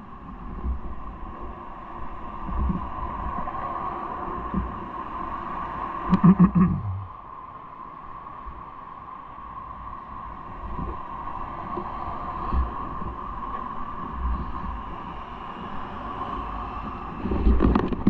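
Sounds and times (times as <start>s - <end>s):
steady hum: 5.9s - 7.4s
low road rumble: 6.1s - 7.2s.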